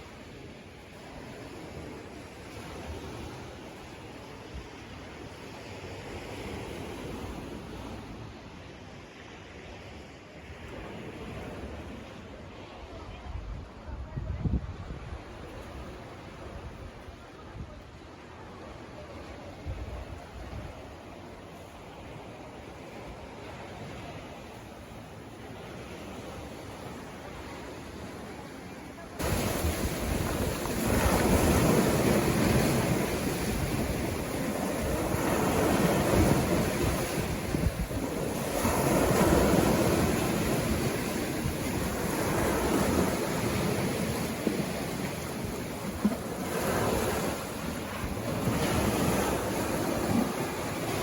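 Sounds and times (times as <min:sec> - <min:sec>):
sea waves breaking on beach: 0:20.2 - 0:51.0.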